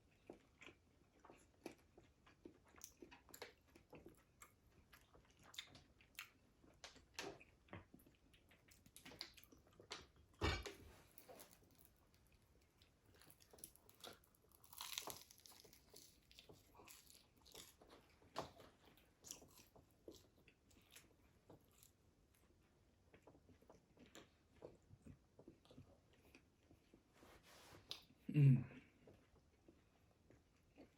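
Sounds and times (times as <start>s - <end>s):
chewing crispy fried food: 0.0s - 27.1s, 27.8s - 30.9s.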